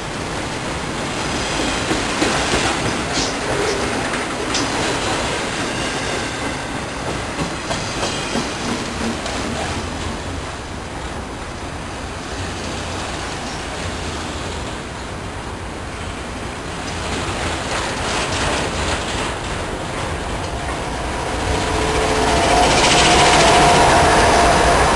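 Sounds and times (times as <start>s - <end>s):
train wheels clattering: 0.4s - 10.5s, 16.7s - 24.9s.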